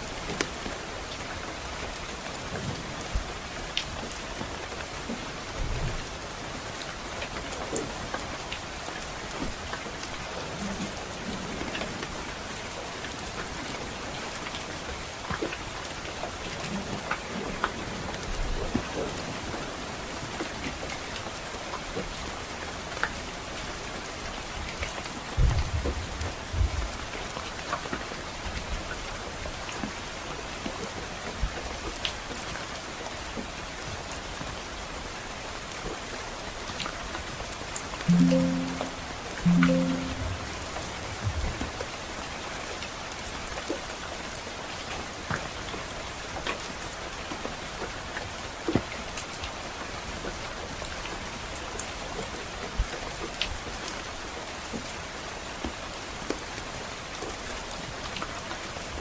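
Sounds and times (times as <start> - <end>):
rain pattering on a roof: 0.0 - 38.1, 41.2 - 59.0.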